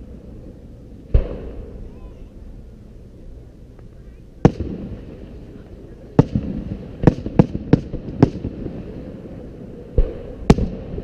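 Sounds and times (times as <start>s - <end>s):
firework shells booming: 1.1s - 2.0s, 4.4s - 11.0s.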